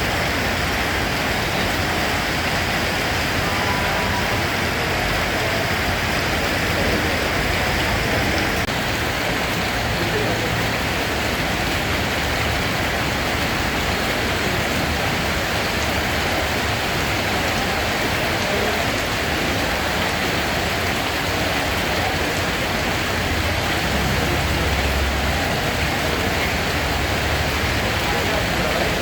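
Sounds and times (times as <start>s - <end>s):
steady rain falling: 0.0s - 29.0s
low rumble: 2.9s - 6.5s.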